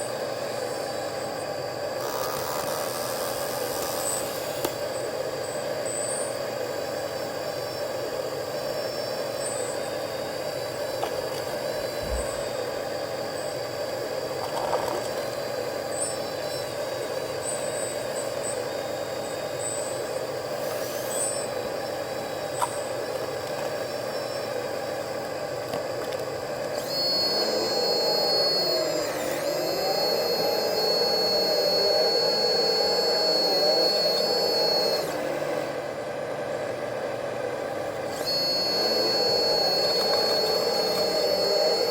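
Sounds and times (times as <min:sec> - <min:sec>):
hydraulic pump and motor whine: 0:00.0 - 0:41.9
small high chirps: 0:26.7 - 0:35.2, 0:38.1 - 0:41.9.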